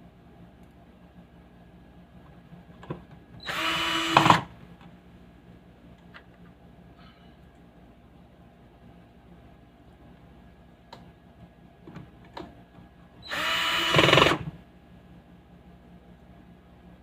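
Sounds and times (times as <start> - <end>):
small motor running: 3.5 - 4.5, 13.3 - 14.5.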